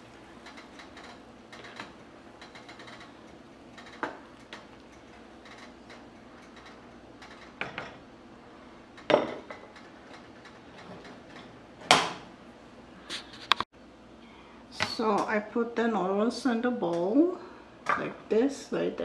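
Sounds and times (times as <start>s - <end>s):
dishes knocking and clinking: 0.0s - 8.0s, 9.0s - 9.8s.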